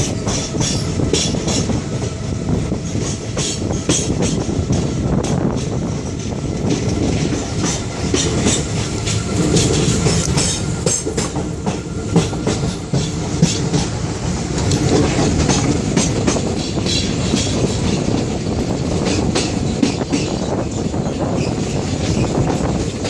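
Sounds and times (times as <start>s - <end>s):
train rumbling: 0.0s - 23.0s
wheels clacking over rail joints: 2.8s - 23.0s.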